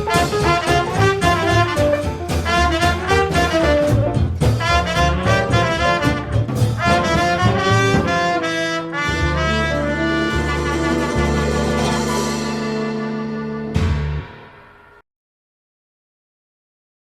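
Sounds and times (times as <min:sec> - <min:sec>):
big band swing jazz: 0:00.0 - 0:14.5.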